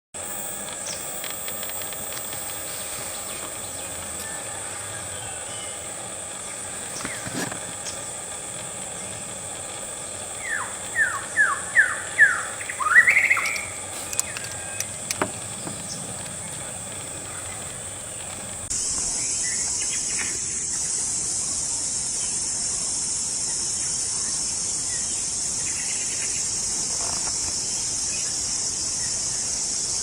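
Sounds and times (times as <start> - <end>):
high insect drone: 0.2 - 30.0
bird whistling calls: 10.4 - 14.9.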